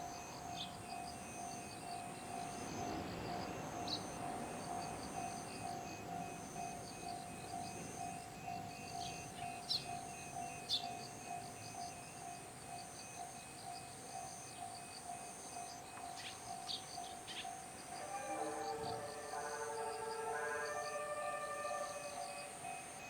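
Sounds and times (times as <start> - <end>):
insects chirping: 0.0 - 23.0
level crossing alarm ringing: 15.1 - 23.0.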